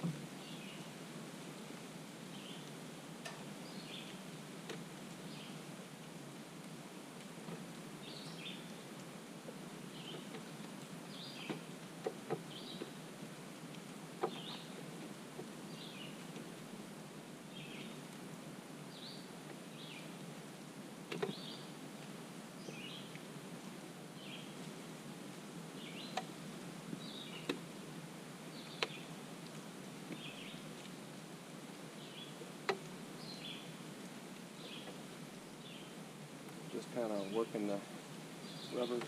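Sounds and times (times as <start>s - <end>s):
outdoor background noise: 0.0s - 39.0s
bird chirping: 38.4s - 39.0s.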